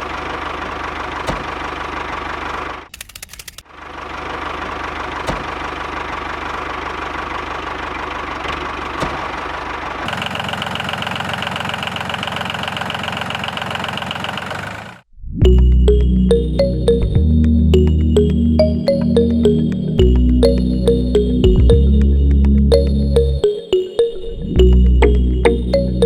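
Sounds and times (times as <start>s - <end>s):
music: 15.4s - 26.0s.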